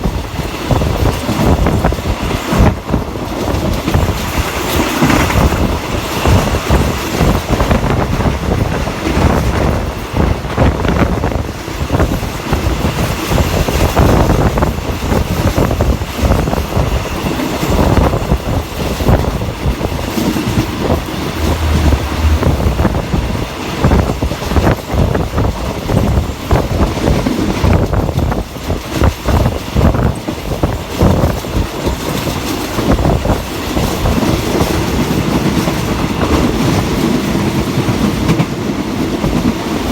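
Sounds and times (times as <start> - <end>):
steady train rumble: 0.0 - 39.9
train wheels clacking over rail joints: 0.0 - 39.9.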